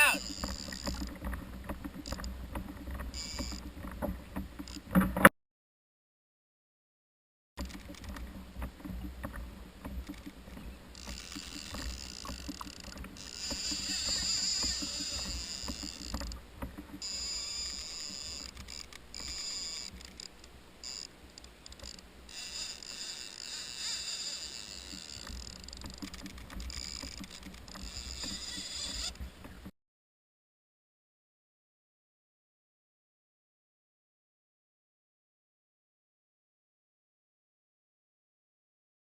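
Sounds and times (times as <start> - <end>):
low rumble of water and wind: 0.0 - 5.3, 7.6 - 29.7.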